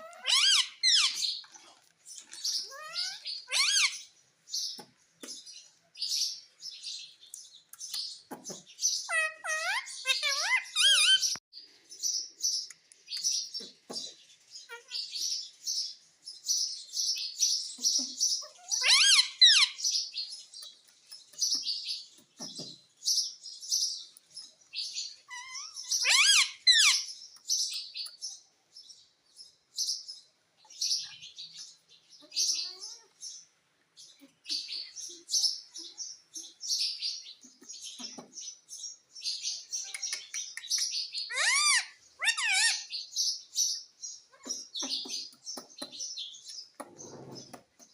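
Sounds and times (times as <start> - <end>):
parrot chattering in high chirps: 0.0 - 1.4, 2.5 - 4.1, 9.0 - 11.4, 17.9 - 20.0, 25.1 - 27.1, 39.8 - 43.1.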